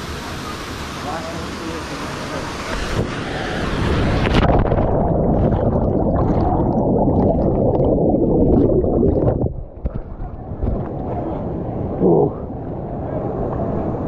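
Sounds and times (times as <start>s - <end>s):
underwater air bubbles gurgling: 3.1s - 11.2s.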